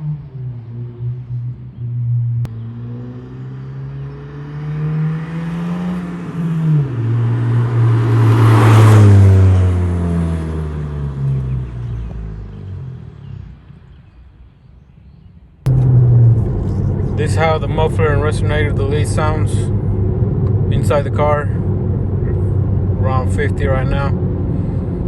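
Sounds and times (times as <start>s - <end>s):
car exhaust accelerating: 0.0s - 13.7s, 15.6s - 25.0s.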